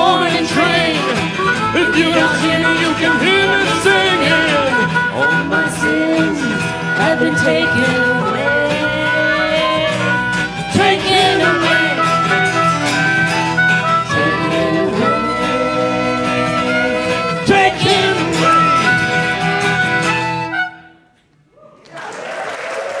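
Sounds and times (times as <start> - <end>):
acoustic string band music: 0.0 - 21.0.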